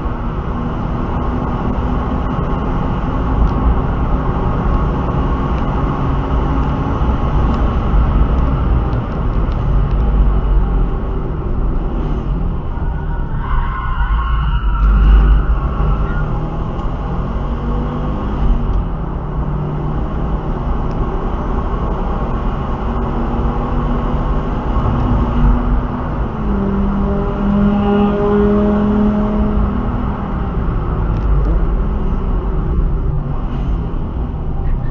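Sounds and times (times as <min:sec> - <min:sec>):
car engine low rumble: 0:00.0 - 0:34.9
road noise: 0:00.0 - 0:34.9.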